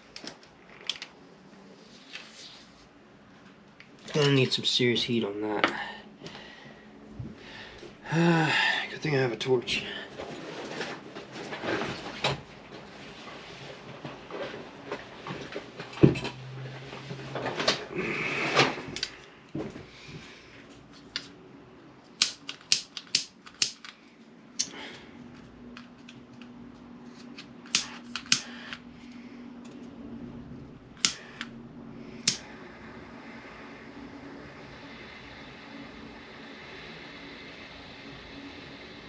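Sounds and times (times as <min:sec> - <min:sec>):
torch igniter clicks: 0:22.2 - 0:24.0, 0:27.6 - 0:28.8, 0:31.0 - 0:31.5, 0:32.2 - 0:32.6
flame hissing: 0:32.1 - 0:39.0.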